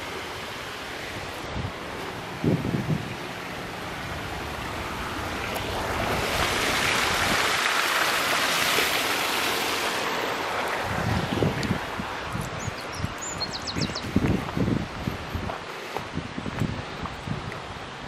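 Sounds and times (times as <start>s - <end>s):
wind rushing through leaves: 0.0s - 18.0s
footsteps: 14.2s - 17.6s.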